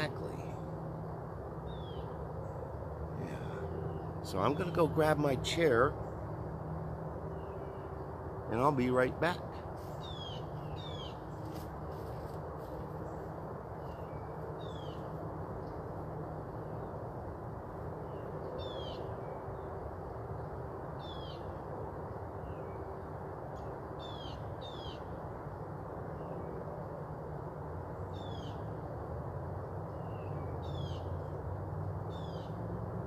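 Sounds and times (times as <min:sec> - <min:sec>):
air conditioner unit humming: 0:00.0 - 0:33.0
songbird high downward call: 0:07.4 - 0:11.6.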